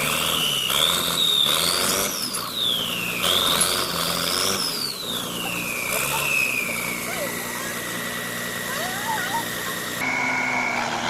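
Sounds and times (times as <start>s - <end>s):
vehicle engine revving: 0.0s - 11.0s
high-pitched whine: 4.8s - 11.0s.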